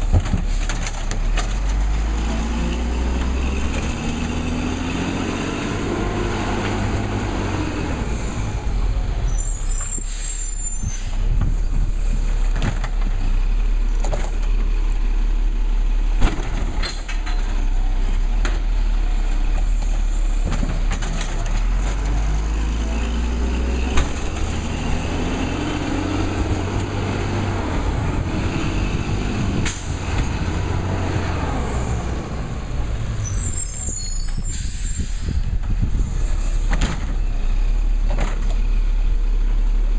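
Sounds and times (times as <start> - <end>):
garbage truck diesel engine: 0.0 - 39.9
air brakes hissing: 9.3 - 11.2, 33.2 - 35.5.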